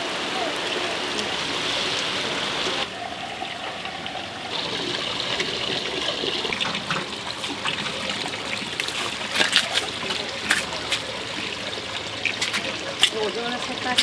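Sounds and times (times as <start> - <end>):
running trickling water: 0.0 - 14.0.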